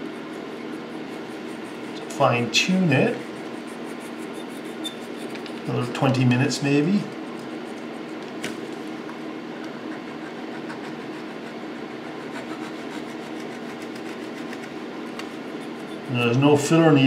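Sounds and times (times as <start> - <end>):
needle file scratching wire: 0.0 - 2.2, 2.8 - 5.7, 9.9 - 16.2
electric fan running: 0.0 - 17.0.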